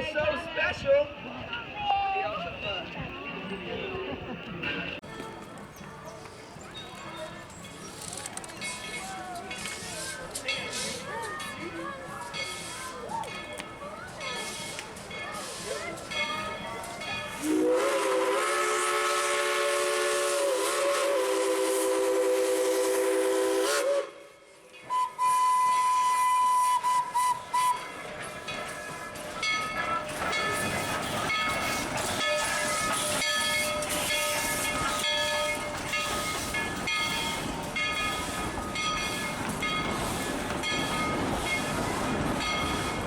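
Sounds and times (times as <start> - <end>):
train rattling on rails: 0.0 - 24.0, 24.6 - 43.0
steam train whistle: 17.4 - 28.0, 31.7 - 38.4.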